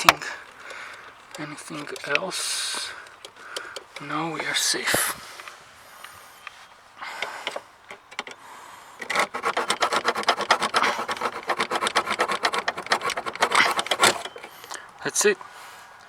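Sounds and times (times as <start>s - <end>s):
hand saw strokes: 9.0s - 15.3s.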